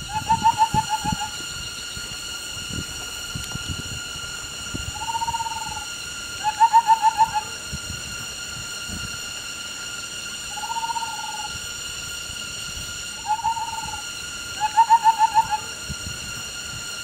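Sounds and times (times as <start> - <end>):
bird calling: 0.0 - 1.4, 4.9 - 7.6, 10.5 - 11.6, 13.2 - 15.7
steady high drone: 0.0 - 17.0.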